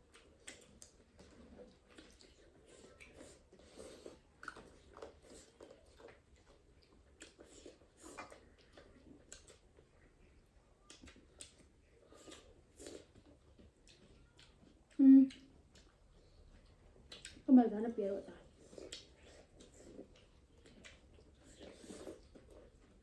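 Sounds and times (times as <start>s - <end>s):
faint chewing and biting: 0.0s - 23.0s
mouth smacks and clicks: 16.6s - 17.5s, 18.7s - 22.8s.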